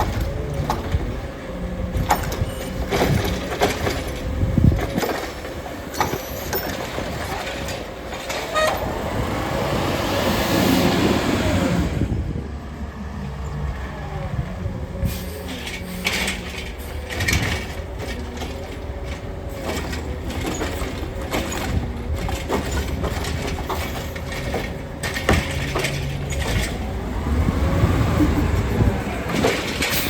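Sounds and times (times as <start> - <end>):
clanks and knocks: 0.0 - 1.2, 1.9 - 8.9, 15.4 - 27.0, 28.5 - 30.0
garbage truck whine: 0.0 - 30.0.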